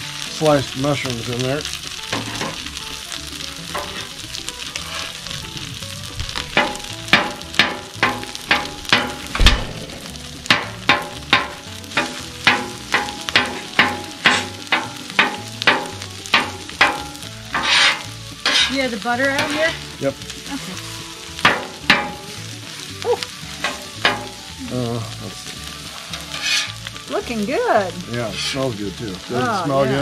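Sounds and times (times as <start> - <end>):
mushrooms sizzling in pan: 0.0 - 30.0
utensil striking pan: 2.0 - 5.2, 6.3 - 20.0, 21.2 - 22.8, 23.5 - 24.6, 26.0 - 27.2.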